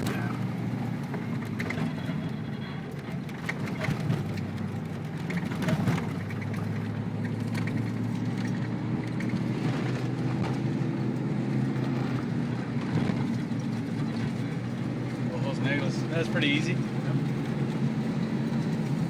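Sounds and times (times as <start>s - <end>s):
truck engine running: 0.0s - 19.0s
knocks and rattles: 3.2s - 15.4s.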